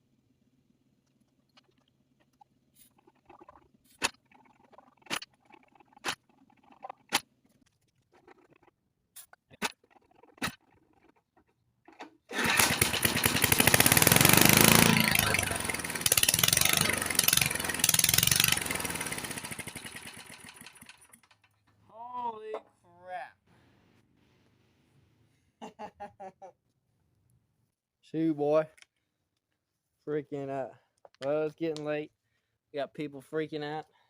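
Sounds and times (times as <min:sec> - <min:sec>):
mower engine running: 0:12.3 - 0:21.3.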